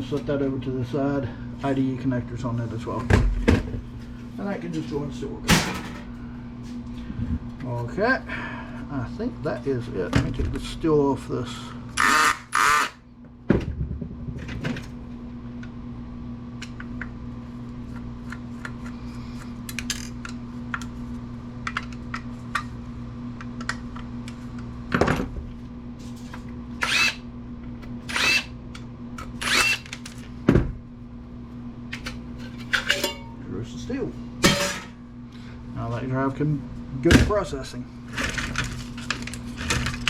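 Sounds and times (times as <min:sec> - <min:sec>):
steady low hum: 0:00.0 - 0:40.0
clicks and clinks of metal parts: 0:32.0 - 0:33.3.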